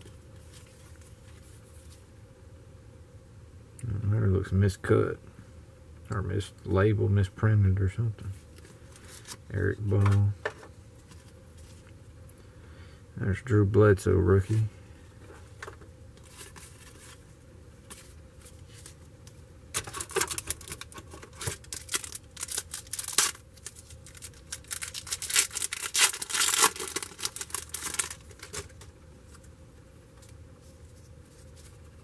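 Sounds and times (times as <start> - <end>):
cards being handled: 15.3 - 29.5, 30.1 - 32.0
wrapper tearing and crinkling: 19.8 - 28.8.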